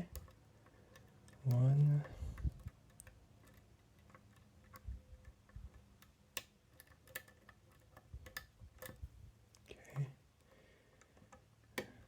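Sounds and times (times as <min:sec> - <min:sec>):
lock pick clicking: 0:00.0 - 0:09.1.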